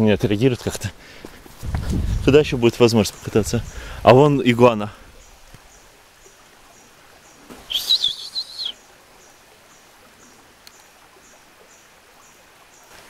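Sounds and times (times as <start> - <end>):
bird wavering call: 7.6 - 8.8
faint high chirp: 7.7 - 8.8.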